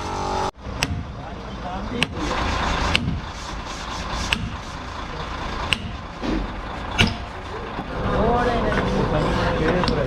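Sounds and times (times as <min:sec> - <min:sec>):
metal-on-metal strikes: 0:00.0 - 0:01.3, 0:05.7 - 0:07.4
workshop noise: 0:00.0 - 0:10.0.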